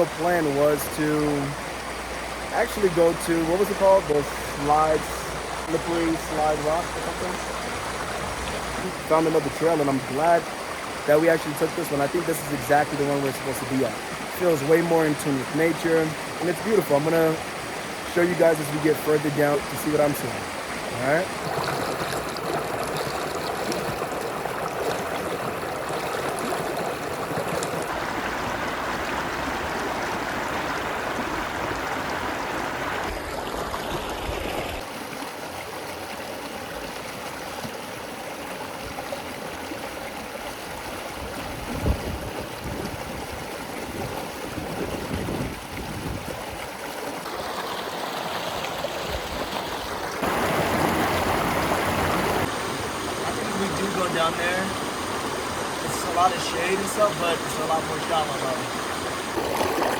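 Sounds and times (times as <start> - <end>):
creek water running over rocks: 0.0 - 59.9.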